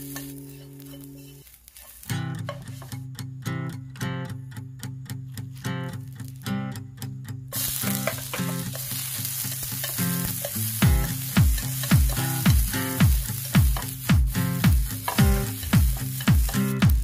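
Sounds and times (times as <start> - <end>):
carrots sizzling in hot oil: 0.0 - 2.9, 7.5 - 17.0.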